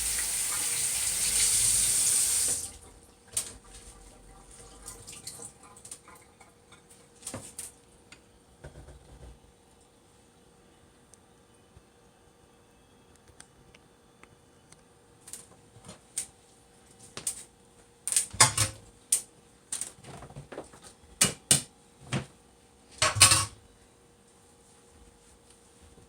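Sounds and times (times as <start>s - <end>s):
dishes and pots clattering: 18.4s - 18.8s, 23.0s - 23.6s.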